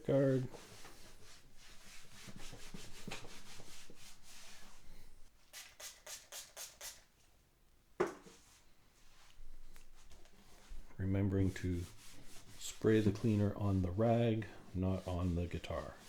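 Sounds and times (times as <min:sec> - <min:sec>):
rag rubbing guitar body: 0:00.1 - 0:04.8, 0:10.6 - 0:16.0.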